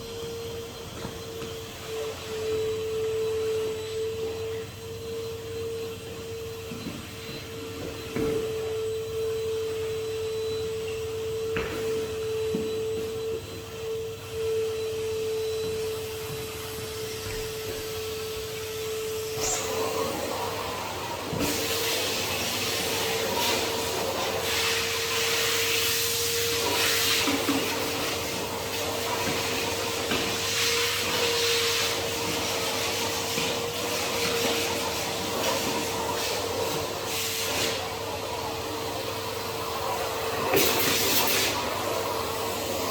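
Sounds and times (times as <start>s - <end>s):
vacuum cleaner motor whine: 0.0s - 42.9s.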